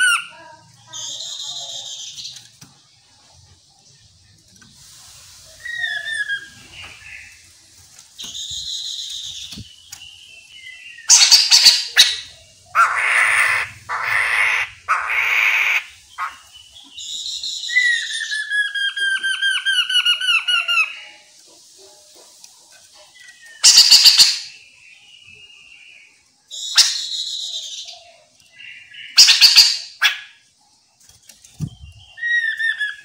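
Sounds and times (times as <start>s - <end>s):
harsh rasping bird calls: 0.0s - 4.7s, 8.2s - 24.7s, 26.5s - 30.6s.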